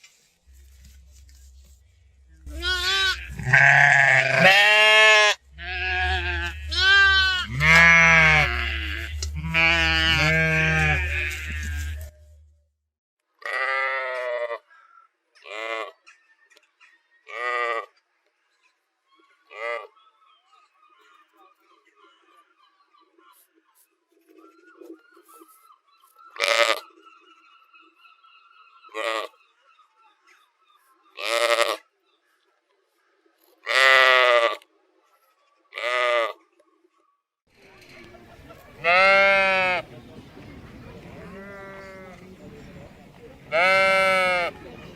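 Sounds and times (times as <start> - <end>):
low steady hum: 0.4 - 4.5, 5.4 - 12.6
sheep bleating: 2.5 - 12.1, 13.4 - 14.6, 31.2 - 31.8, 38.8 - 39.8, 41.2 - 42.3, 43.5 - 44.6.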